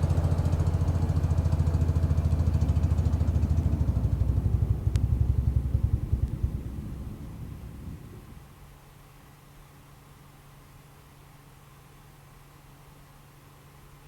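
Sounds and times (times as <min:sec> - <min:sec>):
tractor engine running: 0:00.0 - 0:08.6.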